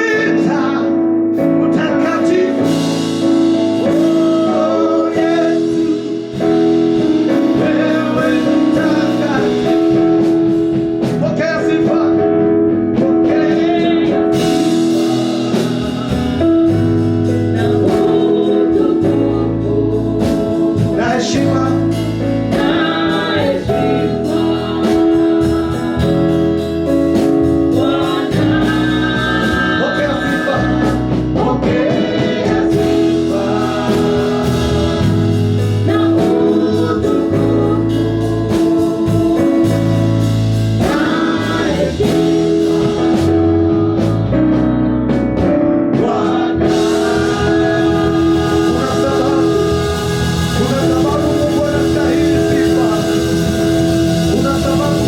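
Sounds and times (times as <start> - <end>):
bass line: 0.0 - 55.0
gospel singing: 0.0 - 55.0
sustained chords: 46.6 - 55.0.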